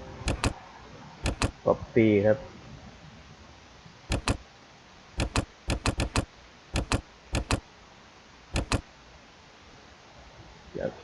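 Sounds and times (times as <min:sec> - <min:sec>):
computer mouse clicking: 0:00.2 - 0:00.6, 0:01.2 - 0:01.6, 0:04.1 - 0:04.4, 0:05.2 - 0:07.6, 0:08.5 - 0:08.9.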